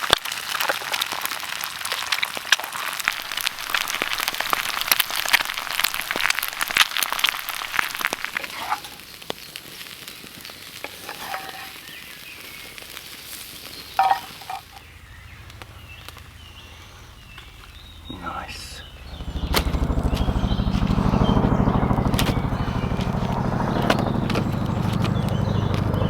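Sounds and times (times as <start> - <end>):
food sizzling on a grill: 0.0 - 15.0.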